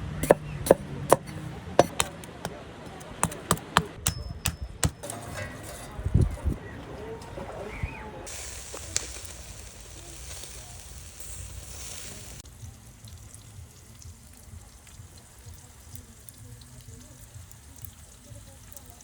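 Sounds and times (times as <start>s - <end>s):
meat sizzling over fire: 8.3s - 19.0s.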